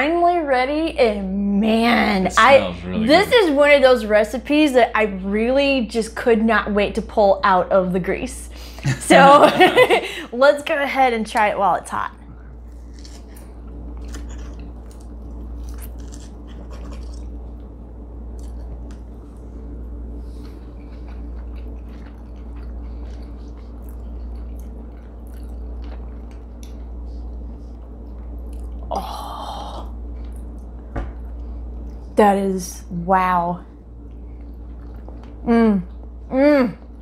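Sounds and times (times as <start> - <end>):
steady low hum: 0.0 - 37.0
people chewing crisp food: 12.4 - 29.2, 34.0 - 37.0.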